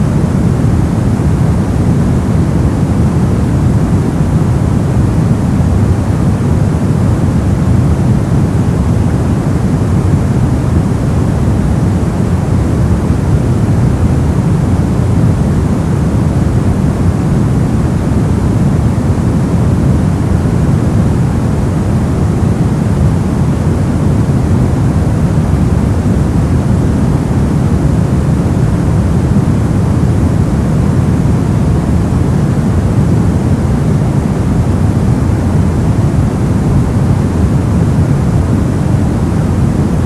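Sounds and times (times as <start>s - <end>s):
brown noise rumbling hiss: 0.0s - 40.0s.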